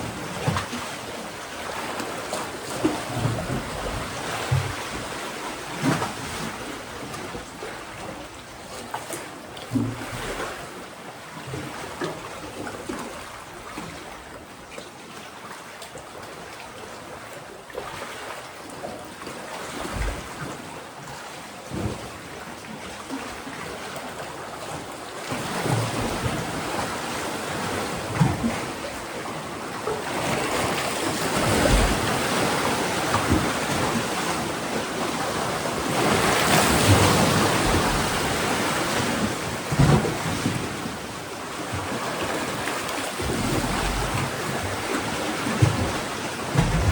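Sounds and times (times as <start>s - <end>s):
waves washing on rocky shore: 25.3s - 46.9s
dull low thumps: 45.6s - 46.9s.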